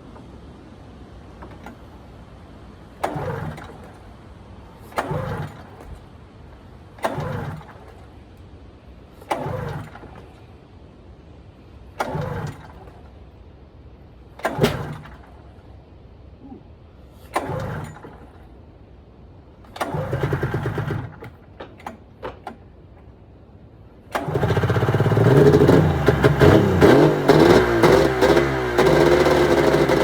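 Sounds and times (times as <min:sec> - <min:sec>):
snowmobile engine recoil pulls: 0:02.8 - 0:08.2, 0:09.1 - 0:10.5, 0:11.9 - 0:13.2, 0:14.4 - 0:15.5, 0:16.4 - 0:18.5, 0:19.7 - 0:22.5, 0:24.1 - 0:30.0.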